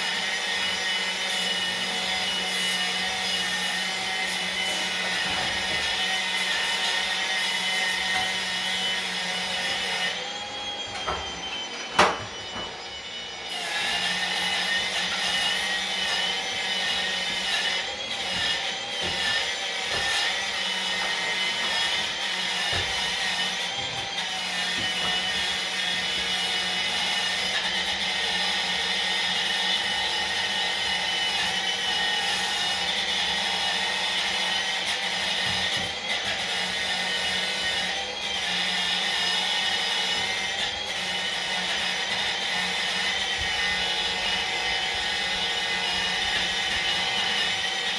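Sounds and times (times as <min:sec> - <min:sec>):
power tool wire brush on stone: 0:00.0 - 0:10.4, 0:13.3 - 0:47.9.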